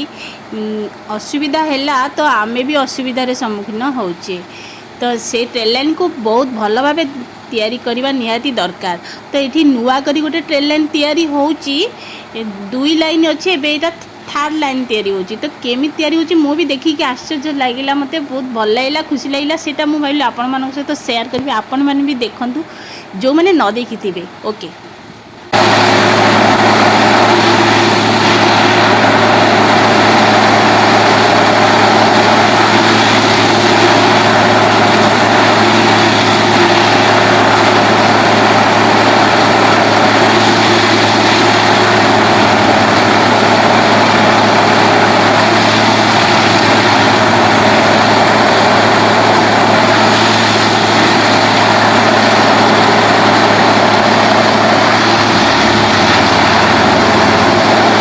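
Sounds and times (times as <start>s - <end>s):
heavy engine running: 0.0s - 23.0s, 24.8s - 58.0s.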